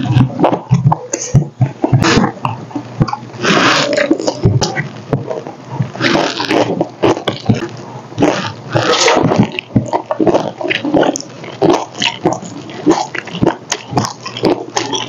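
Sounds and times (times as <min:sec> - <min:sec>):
wet chewing and lip-smacking: 0:00.1 - 0:15.0.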